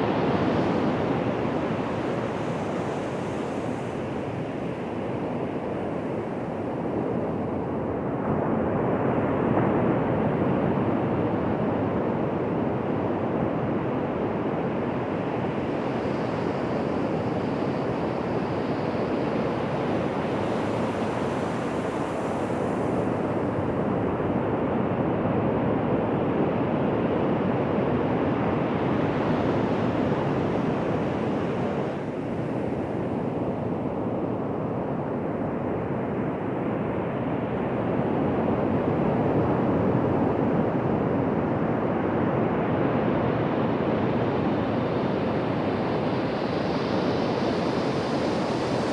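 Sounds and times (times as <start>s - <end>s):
waves breaking on a beach: 14.2s - 24.4s, 37.1s - 48.9s.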